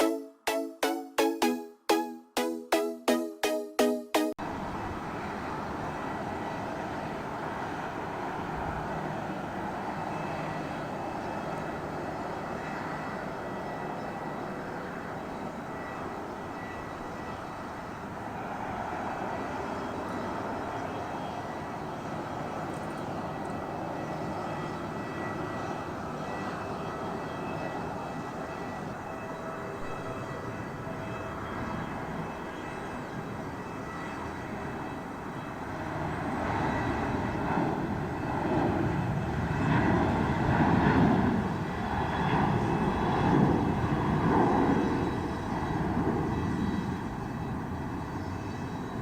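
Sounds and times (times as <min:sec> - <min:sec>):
jet engines roaring: 0:04.4 - 0:12.5, 0:34.5 - 0:49.0.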